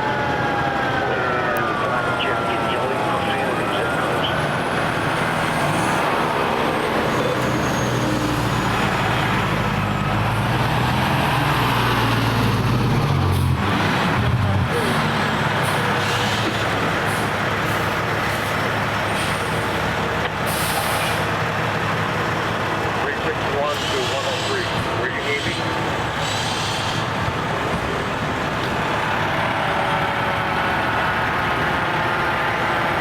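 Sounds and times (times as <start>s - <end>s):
diesel engine running: 0.0s - 33.0s
air brake hisses: 20.5s - 21.2s, 26.2s - 27.0s.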